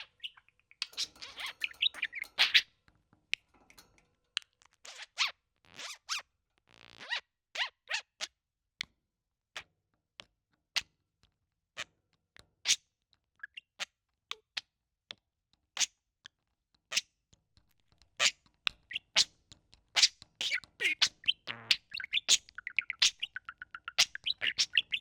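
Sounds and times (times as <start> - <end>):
budgerigar clicks and chirps: 0.0 - 2.6, 18.0 - 25.0.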